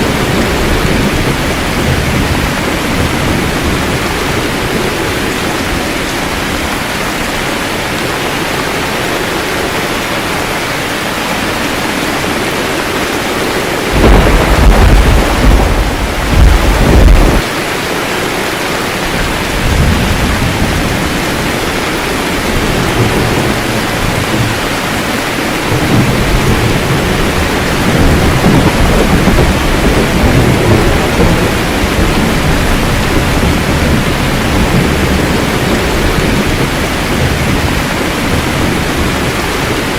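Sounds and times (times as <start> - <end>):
low rolling thunder rumbles: 0.0 - 8.9, 12.0 - 17.5, 19.0 - 39.9
steady rain: 0.0 - 39.9
thunder crack: 13.9 - 17.5, 25.7 - 39.8.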